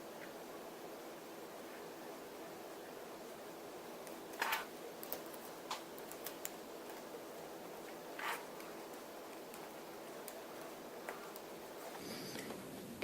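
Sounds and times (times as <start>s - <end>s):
plastic scrape: 8.2s - 8.5s.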